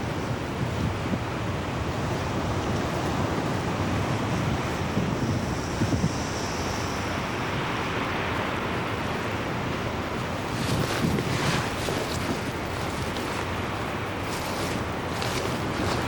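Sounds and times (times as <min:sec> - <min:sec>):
wind buffeting microphone: 0:00.0 - 0:16.0
rushing surf-like sound: 0:10.0 - 0:16.0.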